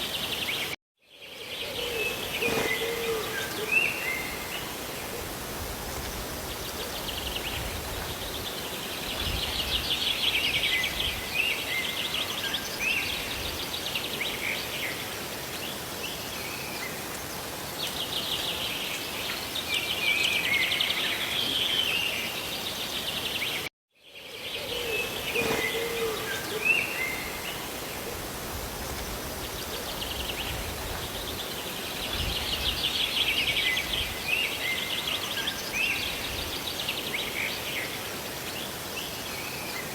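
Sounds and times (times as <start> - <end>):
small birds chirping and trilling: 0.0 - 4.9, 6.0 - 28.1
rain and falling water hiss: 0.0 - 39.9.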